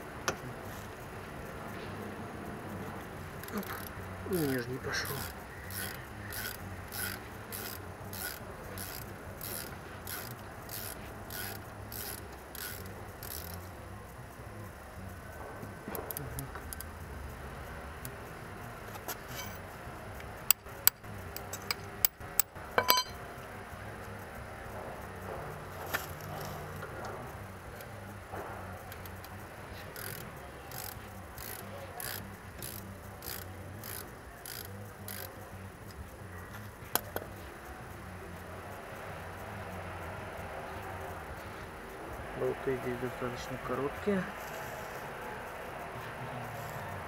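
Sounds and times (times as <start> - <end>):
ratchet wrench clicking: 3.0 - 15.1, 15.9 - 23.2, 25.9 - 36.0, 36.6 - 39.8
sharp metallic knocks: 22.0 - 23.2.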